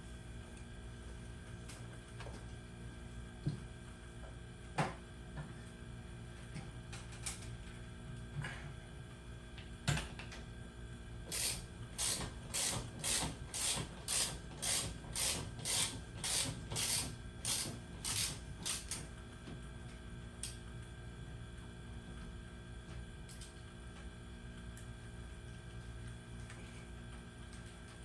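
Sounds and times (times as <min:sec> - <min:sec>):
ratchet wrench ratcheting: 0:11.4 - 0:19.0.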